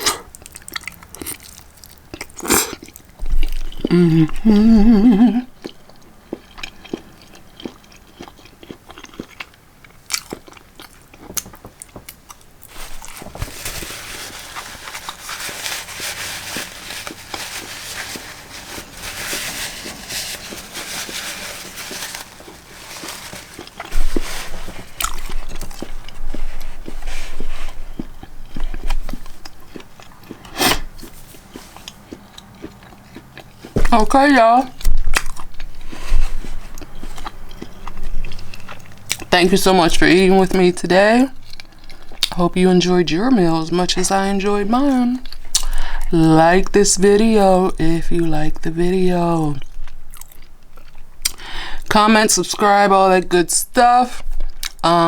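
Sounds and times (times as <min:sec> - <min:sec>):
person chewing food: 0:00.0 - 0:39.4, 0:41.3 - 0:42.4, 0:45.2 - 0:46.1, 0:49.2 - 0:51.6, 0:54.4 - 0:54.8
crunching bites: 0:19.9 - 0:27.0, 0:34.7 - 0:39.3.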